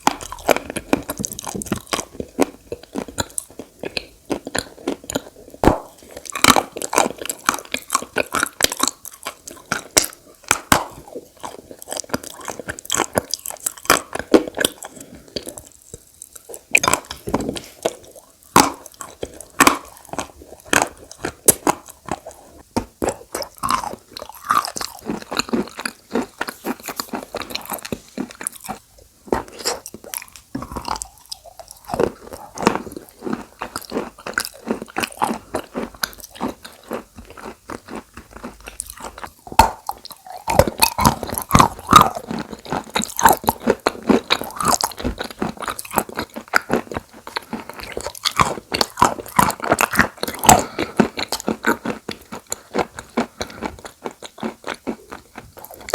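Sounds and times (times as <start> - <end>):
chewing crunchy chalk: 0.0 - 55.9.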